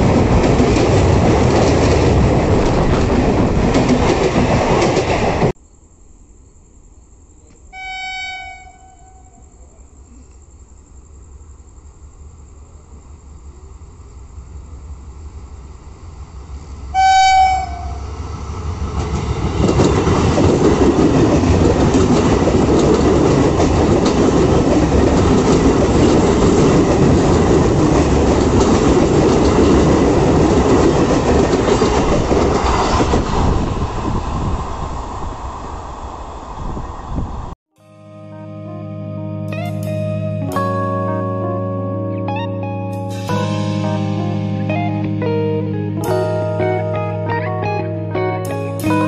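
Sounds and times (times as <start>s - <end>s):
train rumble and wheel clatter: 0.0s - 5.6s, 10.8s - 37.6s, 43.0s - 44.3s
train horn blast: 7.7s - 9.4s, 16.9s - 18.2s.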